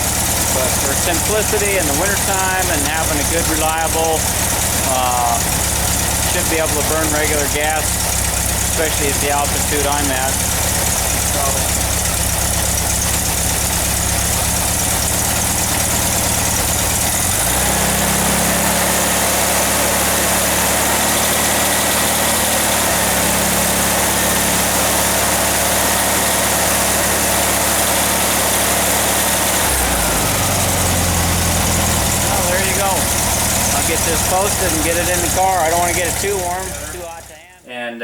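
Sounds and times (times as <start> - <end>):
car engine idling and revving: 0.0 - 37.6.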